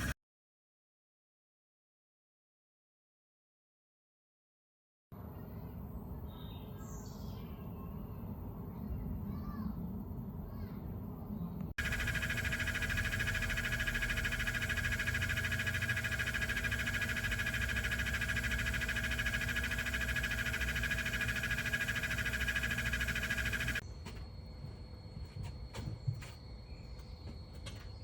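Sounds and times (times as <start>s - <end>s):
blower fan whine: 11.8s - 27.9s.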